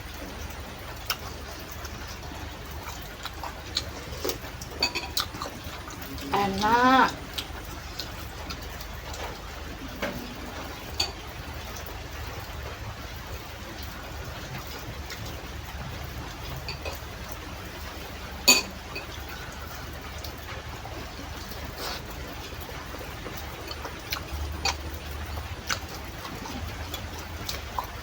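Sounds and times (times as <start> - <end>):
rain hiss: 0.0 - 27.8
eating sounds: 0.2 - 11.9, 18.8 - 28.0
utensil clinking on dish: 18.5 - 19.1.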